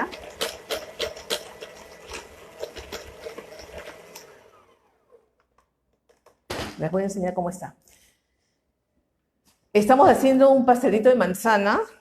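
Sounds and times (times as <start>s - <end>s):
electric hand mixer beating: 0.0s - 5.3s.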